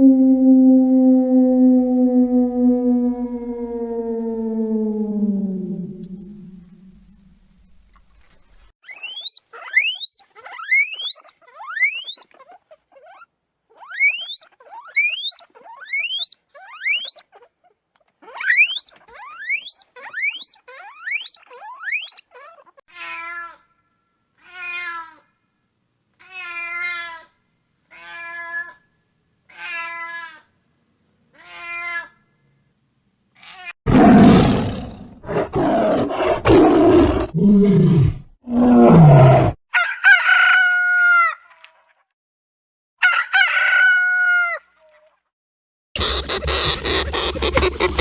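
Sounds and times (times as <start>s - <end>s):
high rising chirps: 0.0s - 7.2s.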